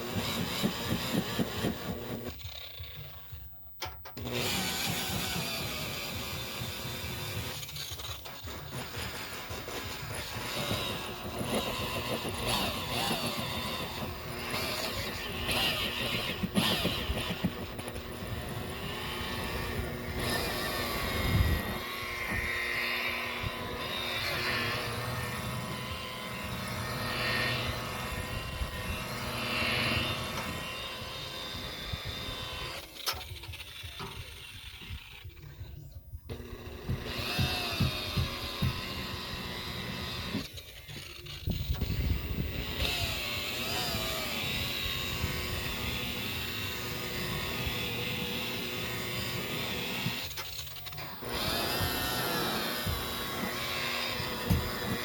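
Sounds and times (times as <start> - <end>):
rotary buffer motor whine: 0.0 - 3.5, 4.2 - 35.4, 36.3 - 55.0.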